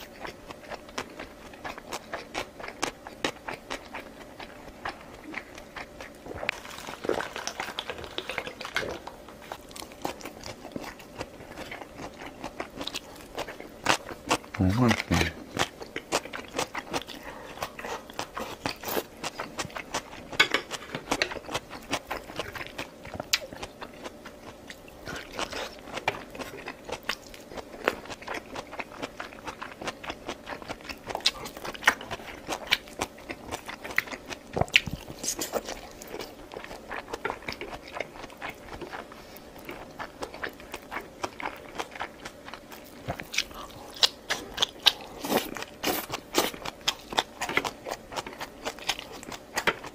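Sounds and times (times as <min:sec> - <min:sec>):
person chewing crunchy food: 0:00.0 - 0:49.9.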